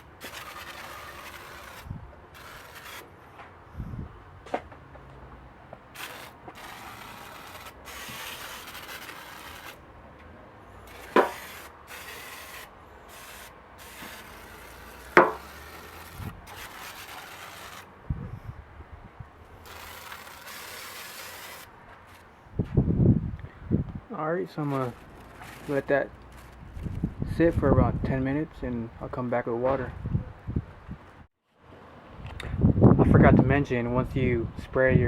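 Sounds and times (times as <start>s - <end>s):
spray can hissing: 0.0s - 1.8s, 5.9s - 9.8s, 10.9s - 17.9s, 19.6s - 21.7s.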